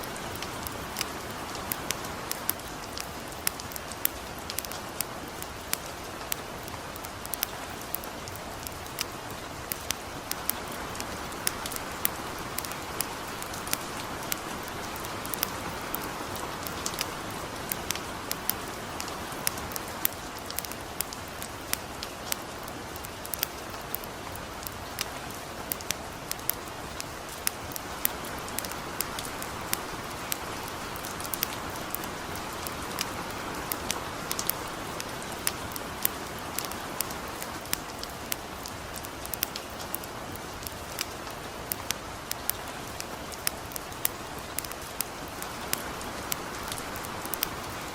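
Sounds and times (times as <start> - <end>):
campfire crackling: 0.0 - 47.9
light rain hissing: 0.0 - 47.9.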